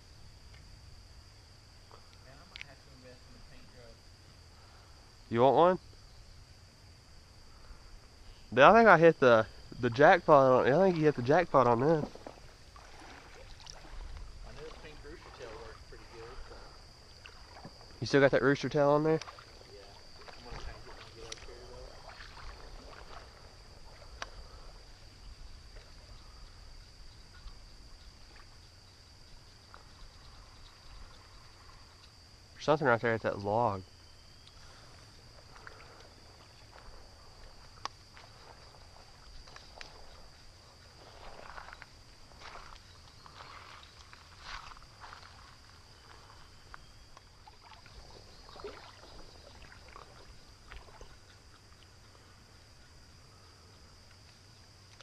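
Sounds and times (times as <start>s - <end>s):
insects droning: 0.0s - 55.0s
water sloshing and splashing: 9.6s - 28.7s, 34.3s - 52.7s.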